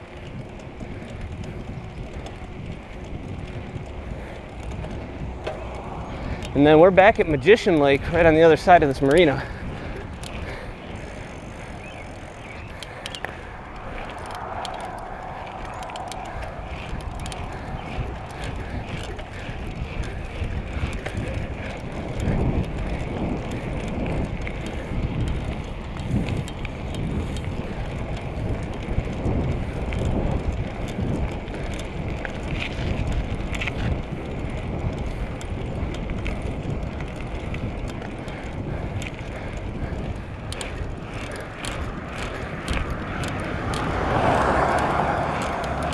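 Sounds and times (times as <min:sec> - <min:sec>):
bicycle tyre noise: 0:00.0 - 0:45.9
rattling clicks from bike: 0:00.0 - 0:45.9
low rough rumble: 0:01.5 - 0:06.8, 0:09.4 - 0:25.3.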